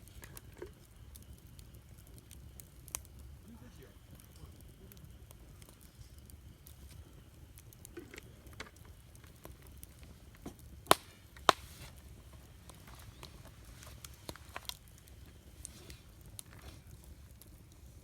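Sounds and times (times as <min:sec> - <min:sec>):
campfire crackling: 0:00.0 - 0:18.0
low steady rumble: 0:00.0 - 0:18.0
sharp loud pops: 0:10.9 - 0:11.7.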